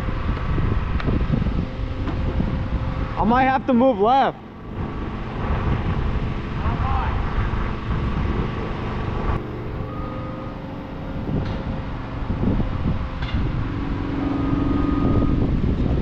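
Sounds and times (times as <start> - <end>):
large vehicle engine rumbling: 0.0 - 16.0.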